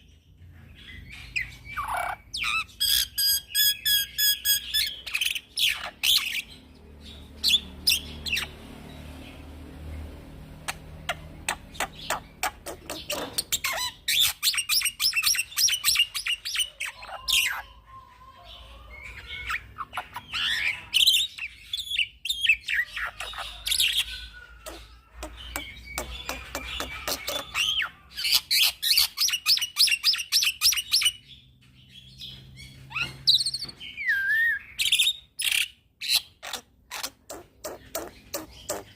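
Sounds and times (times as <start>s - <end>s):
bird singing chirps and whistles: 1.2s - 6.5s, 32.9s - 35.7s.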